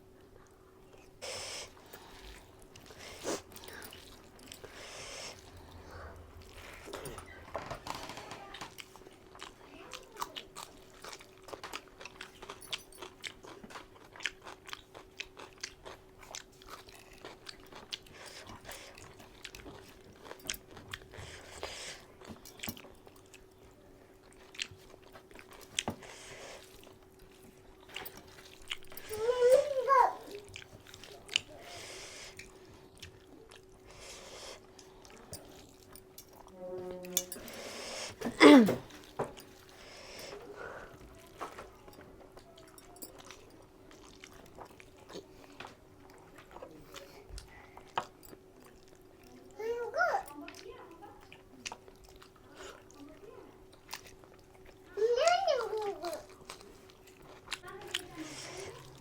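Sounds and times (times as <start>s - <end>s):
faint steady hum: 0.0s - 13.8s
person chewing with wet smacking: 0.1s - 49.6s, 50.2s - 59.0s.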